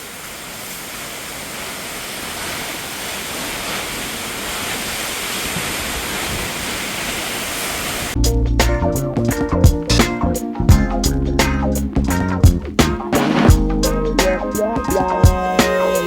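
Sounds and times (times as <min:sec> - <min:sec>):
waterfall rushing: 0:00.0 - 0:08.2
guitar and bass music: 0:08.2 - 0:16.0.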